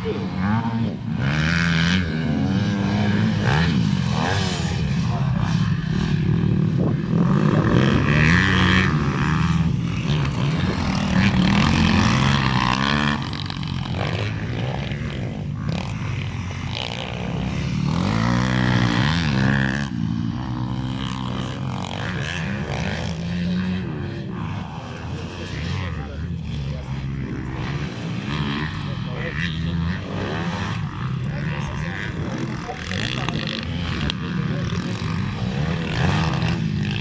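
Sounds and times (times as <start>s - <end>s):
dirt bike engines revving: 0.0s - 37.0s.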